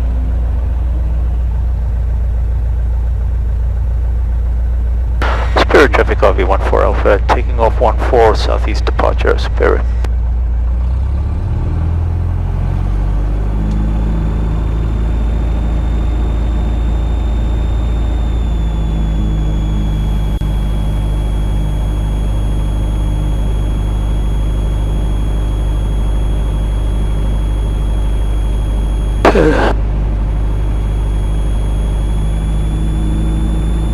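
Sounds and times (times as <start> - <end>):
aircraft engine and propeller drone: 0.0 - 33.9
thin high whine: 5.2 - 10.0, 13.3 - 33.9.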